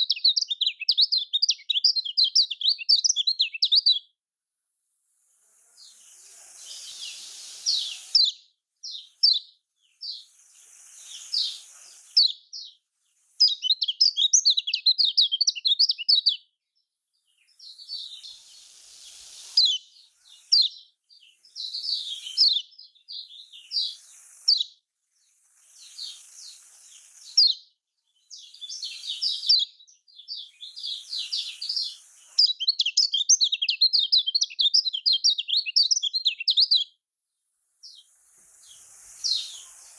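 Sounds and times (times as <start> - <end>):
bird chirping rapidly: 0.0 - 4.1, 5.8 - 12.8, 13.4 - 16.5, 17.4 - 24.8, 25.6 - 36.9, 37.8 - 39.9
faint hiss: 4.7 - 15.4, 17.1 - 33.6, 37.3 - 39.9.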